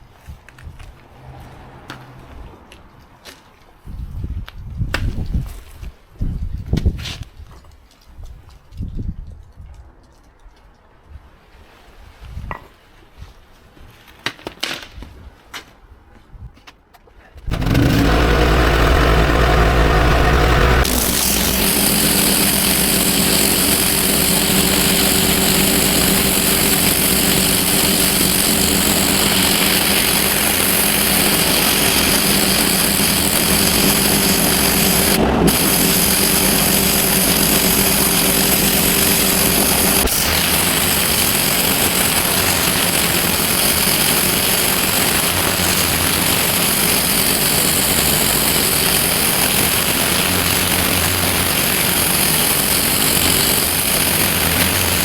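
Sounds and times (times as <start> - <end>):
high-pressure water jet hiss: 17.5 - 55.0
pressure washer motor humming: 17.5 - 55.0.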